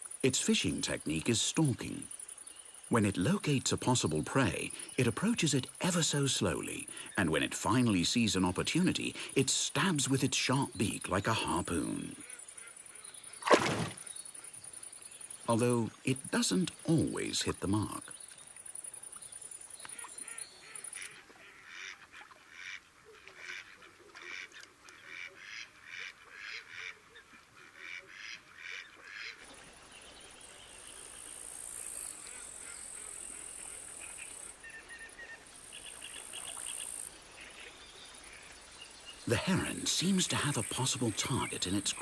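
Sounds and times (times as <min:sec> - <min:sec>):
waterfowl honking quacks: 0:20.0 - 0:29.4.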